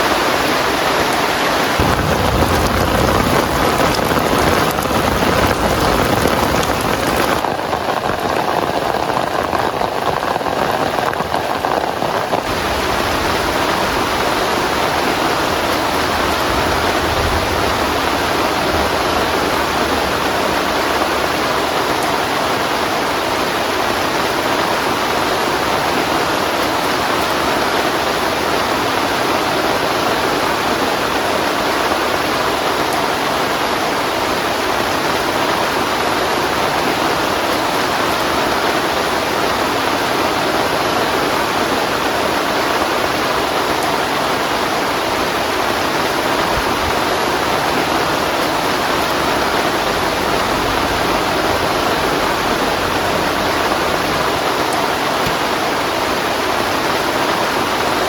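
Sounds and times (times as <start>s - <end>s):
heavy rain falling: 0.0s - 58.0s
thunder rumble: 1.8s - 22.3s, 46.3s - 55.6s.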